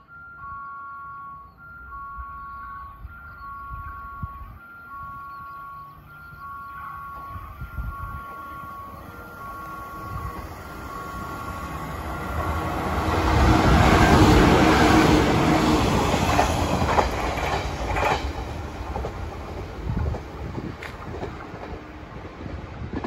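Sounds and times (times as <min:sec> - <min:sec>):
train rumble and wheel clatter: 0:00.0 - 0:23.0
wheels clicking over rail joints: 0:12.1 - 0:23.0.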